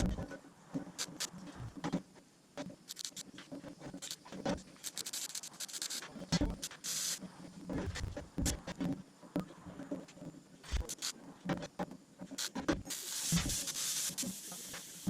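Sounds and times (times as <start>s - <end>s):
clicks taps and scrapes of handling: 0.0s - 6.9s, 7.7s - 13.6s
brief hiss: 6.8s - 7.2s, 12.4s - 15.0s.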